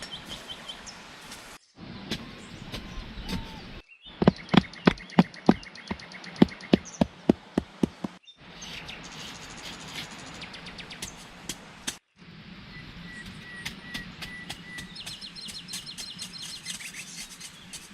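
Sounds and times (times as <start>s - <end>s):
sharp knocks: 4.2s - 8.2s.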